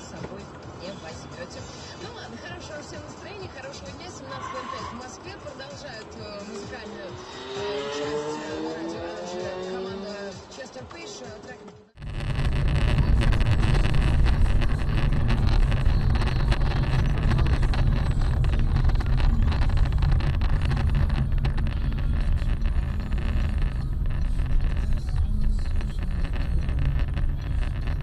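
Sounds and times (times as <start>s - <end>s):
road noise: 0.0s - 28.0s
car engine rumble: 12.0s - 28.0s
wind noise: 12.0s - 28.0s.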